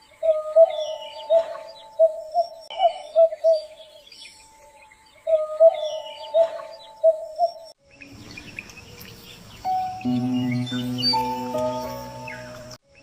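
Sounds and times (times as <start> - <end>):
birds calling: 0.0 - 13.0
music: 10.0 - 12.8.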